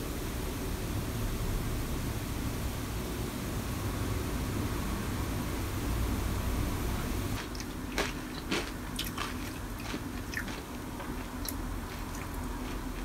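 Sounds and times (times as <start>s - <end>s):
low steady hum: 0.0s - 13.0s
cornflakes crunched and chewed: 7.4s - 13.0s.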